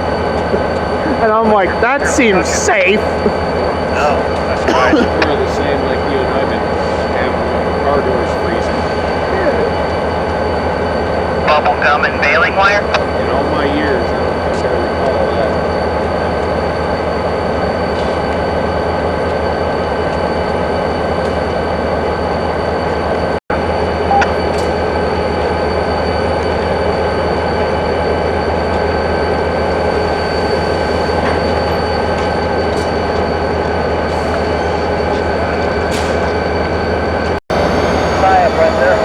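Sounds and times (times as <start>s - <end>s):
freight train rumbling: 0.0s - 39.0s
high wheel squeal: 24.1s - 39.0s.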